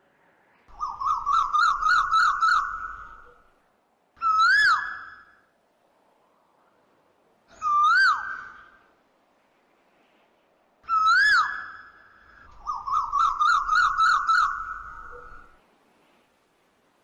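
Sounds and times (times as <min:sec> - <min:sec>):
bird warbling trill: 0:12.6 - 0:15.5.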